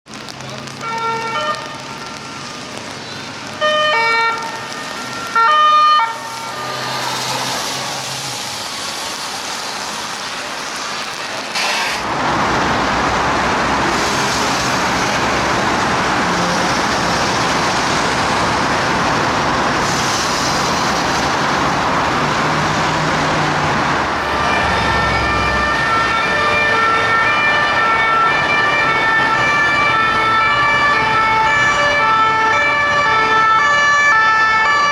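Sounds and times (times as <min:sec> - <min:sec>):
street traffic: 0:00.0 - 0:34.9
police two-tone siren: 0:24.2 - 0:34.9.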